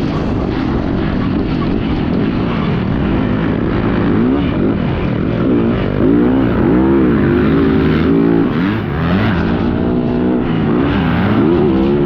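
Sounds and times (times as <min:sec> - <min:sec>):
rushing wind noise: 0:00.0 - 0:12.0
motocross engine revving: 0:03.0 - 0:12.0.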